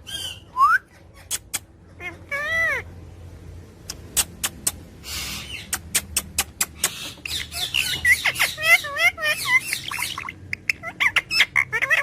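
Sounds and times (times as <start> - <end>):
parrot chirping calls: 0.0 - 3.1, 3.8 - 12.0
parrot clicking: 3.8 - 4.9, 5.7 - 7.4.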